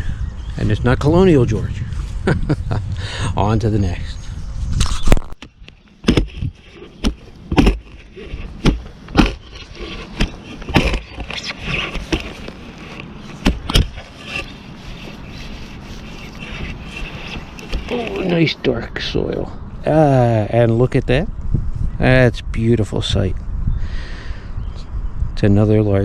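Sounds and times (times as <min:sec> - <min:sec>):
shovel blade cutting into soil: 0:06.0 - 0:18.3
shovel scraping: 0:06.0 - 0:18.4.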